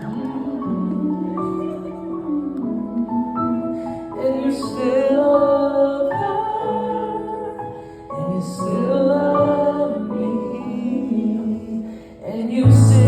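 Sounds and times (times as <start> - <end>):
man singing a slow ballad: 8.2 - 13.0.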